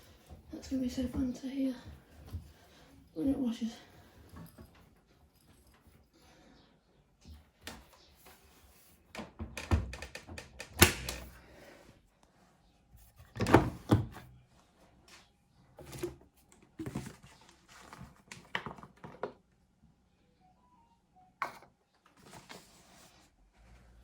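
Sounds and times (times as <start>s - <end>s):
washing machine being handled: 13.2s - 14.3s.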